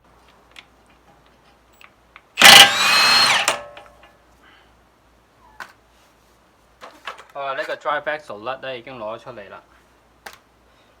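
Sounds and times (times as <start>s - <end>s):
electric power tool whirring: 2.4s - 3.8s.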